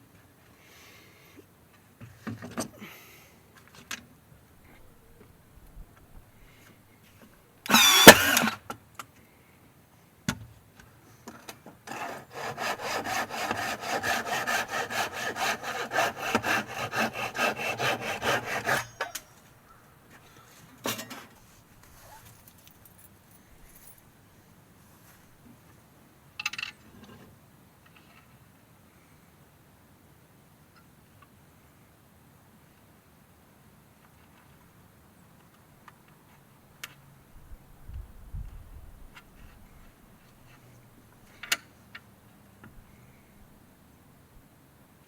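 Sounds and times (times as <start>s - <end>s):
hand saw cutting wood: 7.7s - 8.6s, 11.8s - 19.3s.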